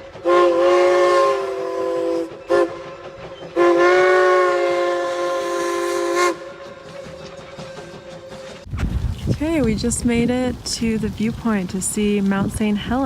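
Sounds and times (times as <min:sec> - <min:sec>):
train air horn blasts: 0:00.0 - 0:08.7.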